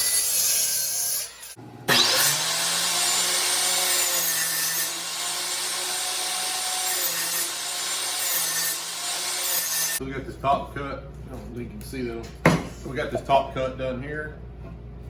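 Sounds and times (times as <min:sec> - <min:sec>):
power saw cutting wood: 0:00.0 - 0:10.0.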